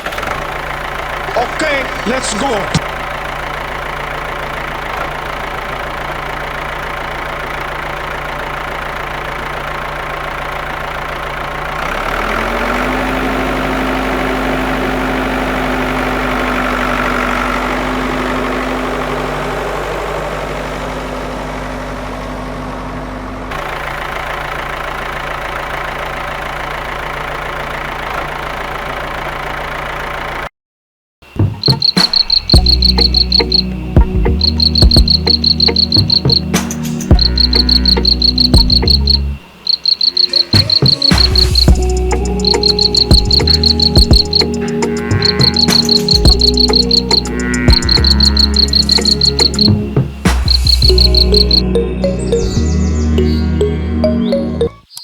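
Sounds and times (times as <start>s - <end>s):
tractor engine idling: 0.0s - 30.5s, 31.2s - 54.8s
fast high insect-like chirping: 31.4s - 51.6s
higher steady tone: 31.4s - 54.8s.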